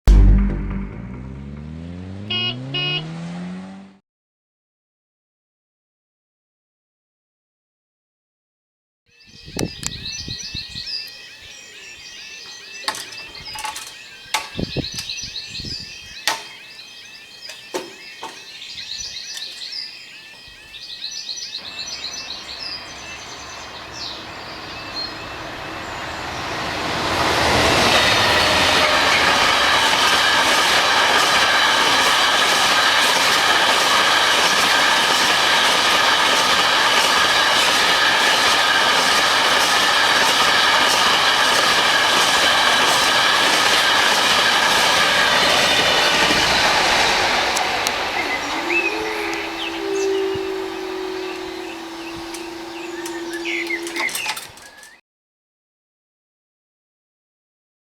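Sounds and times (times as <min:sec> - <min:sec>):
freight train passing: 0:00.1 - 0:03.5, 0:21.6 - 0:55.0
birds chirping: 0:09.1 - 0:55.0
wagons clattering over rail joints: 0:12.7 - 0:15.2, 0:19.2 - 0:19.7, 0:21.6 - 0:55.0.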